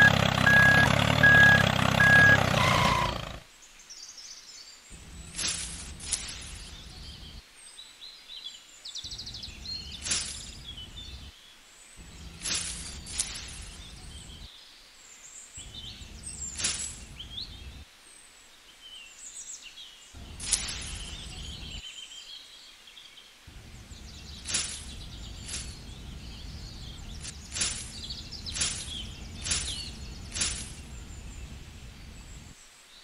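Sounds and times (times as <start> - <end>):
birds chirping and singing: 0.0 - 3.4, 4.0 - 7.4, 8.4 - 14.6, 15.5 - 17.8, 19.5 - 32.6
low rumble: 9.1 - 11.3, 12.0 - 14.5, 15.6 - 17.8, 23.5 - 32.5
short sharp swishes: 20.3 - 21.6, 27.1 - 31.0.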